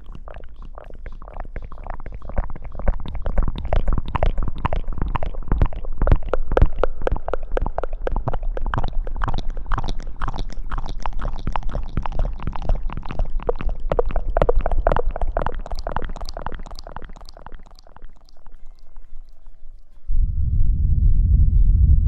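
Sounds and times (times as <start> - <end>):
wet squishing of hair washing: 0.0 - 19.6
low rumble: 20.0 - 22.0.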